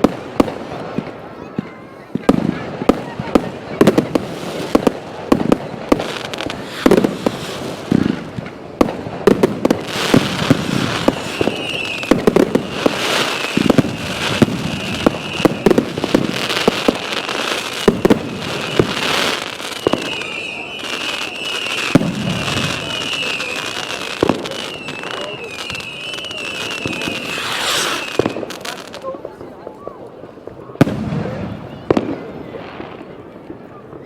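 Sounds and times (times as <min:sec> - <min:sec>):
fireworks bangs and crackles: 0:00.0 - 0:34.0
high wavering firework whistle: 0:05.9 - 0:08.4, 0:09.6 - 0:29.0.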